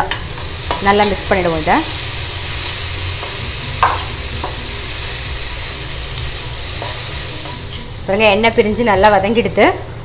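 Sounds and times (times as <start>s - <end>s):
masala sizzling in oil: 0.0s - 9.3s
spoon scraping pan: 6.7s - 8.1s.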